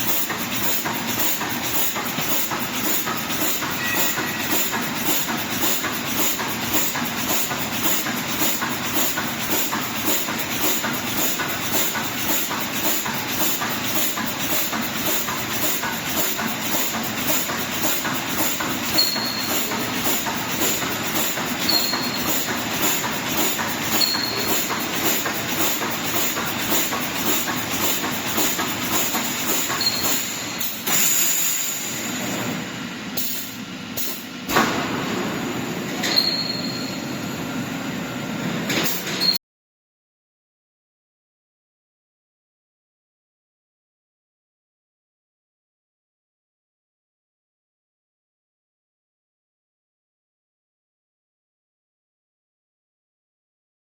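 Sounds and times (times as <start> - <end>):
welding machine clatter: 0.0 - 32.2
welding machine hiss: 0.0 - 32.6, 33.2 - 34.6.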